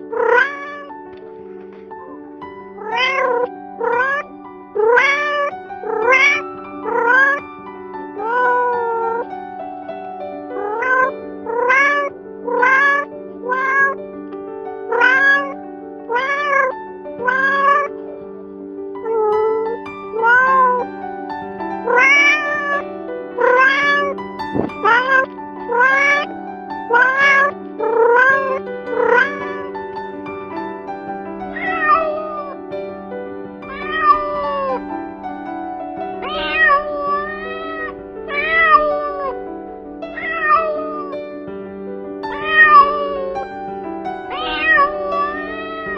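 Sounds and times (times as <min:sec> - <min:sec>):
cat meowing: 0:00.0 - 0:01.1, 0:02.0 - 0:09.3, 0:10.5 - 0:14.0, 0:14.9 - 0:18.0, 0:19.0 - 0:21.0, 0:21.8 - 0:26.3, 0:26.9 - 0:29.7, 0:31.5 - 0:32.6, 0:33.6 - 0:35.0, 0:36.2 - 0:39.5, 0:40.1 - 0:41.2, 0:42.3 - 0:43.4, 0:44.2 - 0:45.9
background music with held notes: 0:00.0 - 0:45.9.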